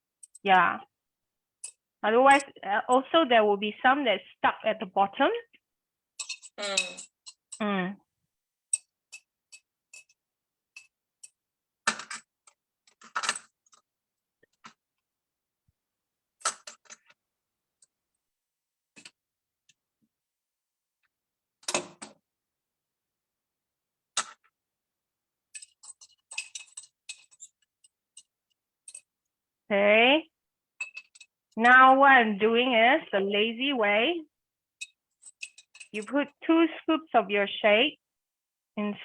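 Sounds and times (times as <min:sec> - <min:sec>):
metal fork clinking on glass jar: 0:06.2 - 0:07.6.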